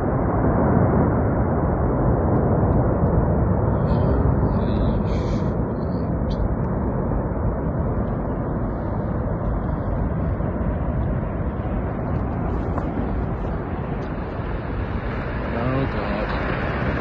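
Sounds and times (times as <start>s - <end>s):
avalanche rumbling: 0.0s - 17.0s.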